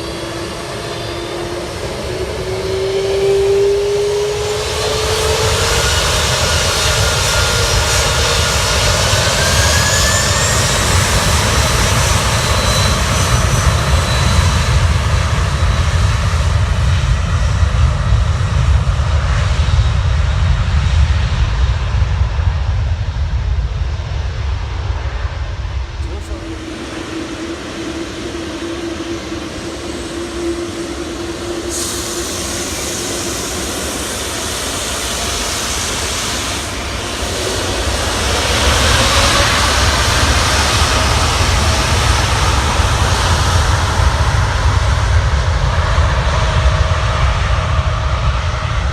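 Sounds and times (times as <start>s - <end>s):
jet engine rumble: 0.0s - 48.9s
jet engine whine: 0.0s - 48.9s
steady hum: 25.6s - 42.8s.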